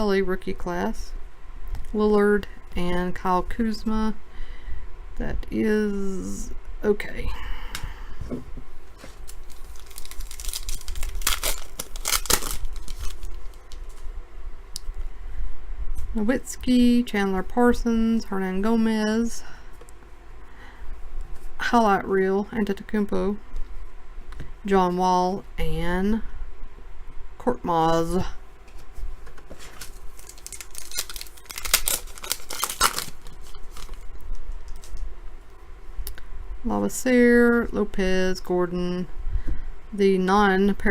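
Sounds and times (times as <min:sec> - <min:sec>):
card pack wrapper tearing: 0:09.2 - 0:13.8, 0:29.6 - 0:34.0.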